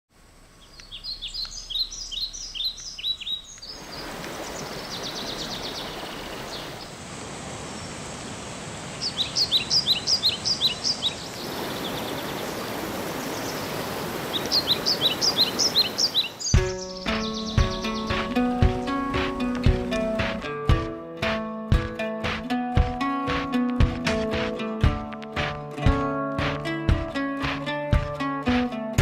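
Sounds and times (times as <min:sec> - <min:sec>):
songbird singing high notes: 0:00.6 - 0:06.9, 0:09.0 - 0:19.4
stream water rushing: 0:02.8 - 0:21.4.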